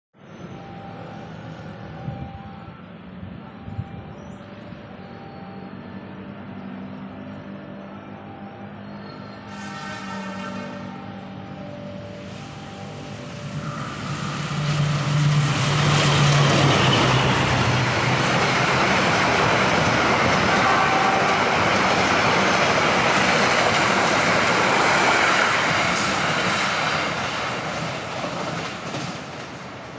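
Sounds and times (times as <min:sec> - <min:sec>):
locomotive engine drone: 0:00.2 - 0:29.9
train wheels rushing on rails: 0:11.8 - 0:29.9.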